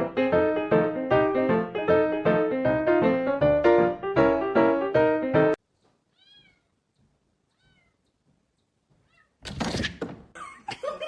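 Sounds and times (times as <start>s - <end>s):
cat meowing: 6.1s - 6.8s, 7.5s - 8.1s, 9.0s - 9.4s.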